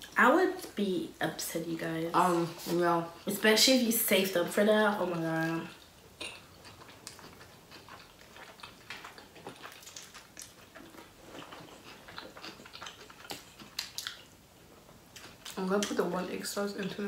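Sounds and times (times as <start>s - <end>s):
person chewing food: 5.7s - 15.9s.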